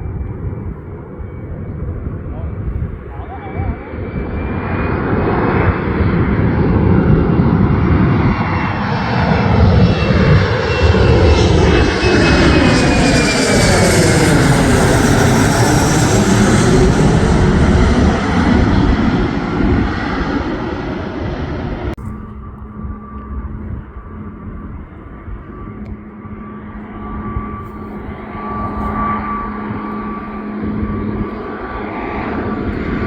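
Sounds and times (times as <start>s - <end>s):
airliner passing overhead: 0.0s - 33.0s.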